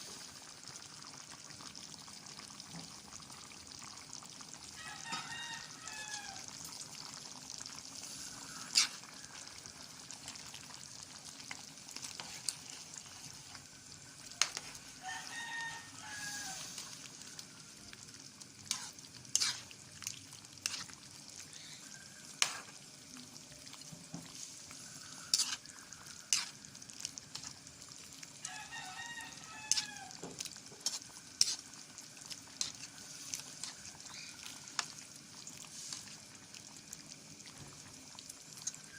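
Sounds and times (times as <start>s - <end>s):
food sizzling in a pan: 0.0s - 38.9s
rooster crowing: 4.7s - 6.5s, 8.2s - 9.7s, 14.4s - 16.9s, 28.4s - 30.4s
utensil scraping a pan: 8.6s - 9.0s, 18.7s - 19.7s, 20.6s - 20.9s, 25.3s - 25.6s, 26.3s - 26.6s, 30.8s - 31.6s.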